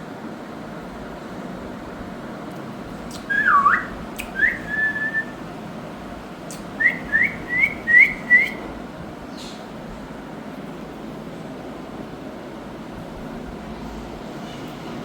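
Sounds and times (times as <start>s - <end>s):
parakeet whistling: 3.1s - 5.4s, 6.8s - 8.7s.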